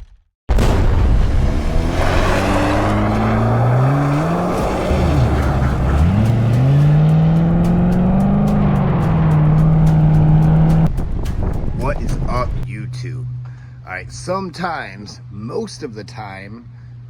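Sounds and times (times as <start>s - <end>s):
car engine accelerating: 1.2s - 14.3s.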